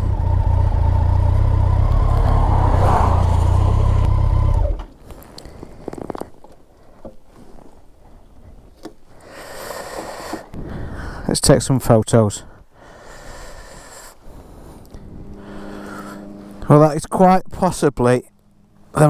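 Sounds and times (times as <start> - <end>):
motorcycle engine running: 0.0 - 4.8.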